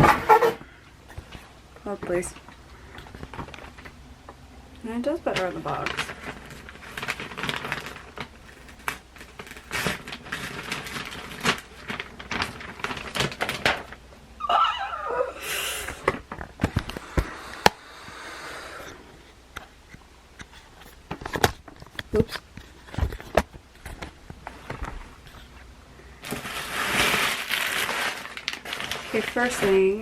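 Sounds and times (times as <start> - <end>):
cardboard and paper rustling: 0.0 - 4.0, 5.0 - 14.0, 20.4 - 30.0
squeaky wavering sound: 14.4 - 15.4.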